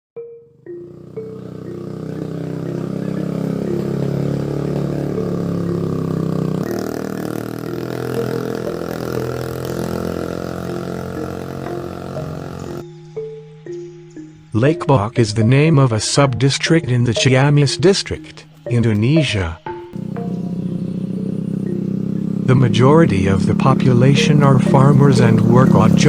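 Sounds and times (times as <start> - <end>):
engine running steadily: 0.8 - 12.8, 19.9 - 26.0
steady mid-pitched tones: 6.6 - 20.5.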